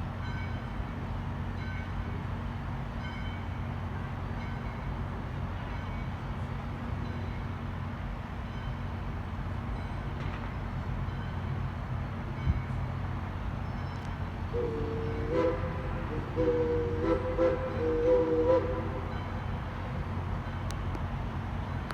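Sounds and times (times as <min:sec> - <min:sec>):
train rumbling: 0:00.0 - 0:21.9
locomotive whistle blasts: 0:14.5 - 0:19.4.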